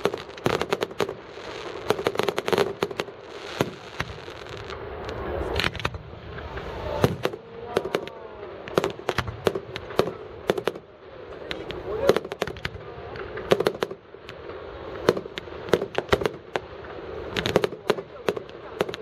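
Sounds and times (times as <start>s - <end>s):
firework whistling glides: 0.0s - 19.0s
fireworks bangs and crackles: 0.0s - 19.0s.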